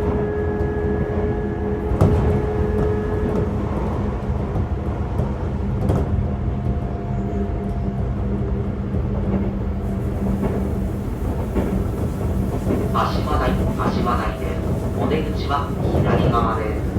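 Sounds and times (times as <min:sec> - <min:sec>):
electric train rumbling: 0:00.0 - 0:16.9
train motor hum: 0:08.7 - 0:16.9.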